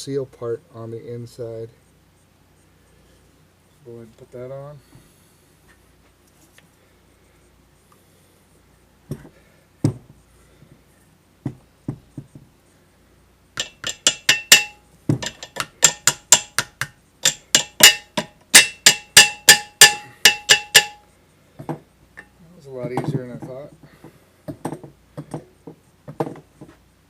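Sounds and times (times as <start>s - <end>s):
hammer striking metal: 13.6s - 21.0s.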